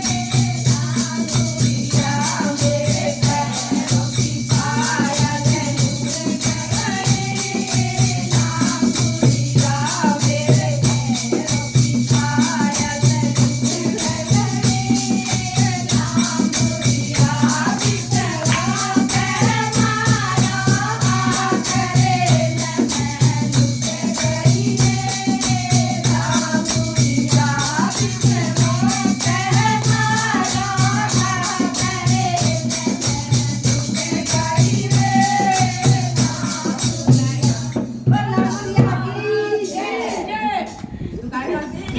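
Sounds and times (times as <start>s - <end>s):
fast rattling percussion beat: 0.0s - 40.8s
person singing devotional song: 0.0s - 41.5s.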